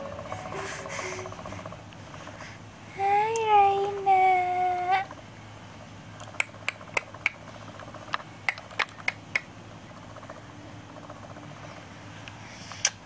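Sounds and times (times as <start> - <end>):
sharp clicks: 8.1 - 9.5.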